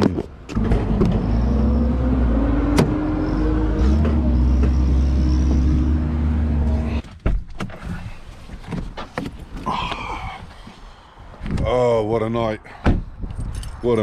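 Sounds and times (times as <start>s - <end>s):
diesel lorry engine running: 0.6s - 7.0s.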